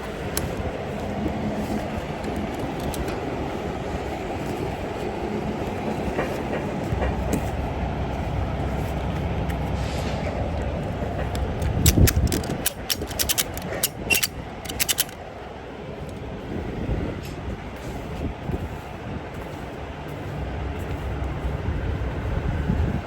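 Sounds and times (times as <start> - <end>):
engine rumble: 0.0 - 23.0
sharp metallic clicks and clanks: 11.1 - 15.2.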